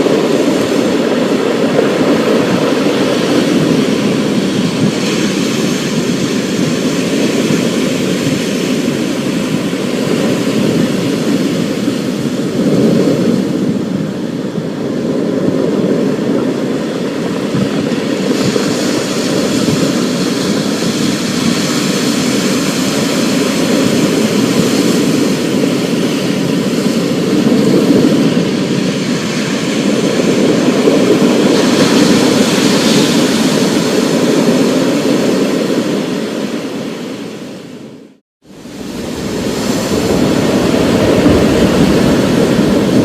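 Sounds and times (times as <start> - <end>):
low thunder rumble: 38.5 - 43.0.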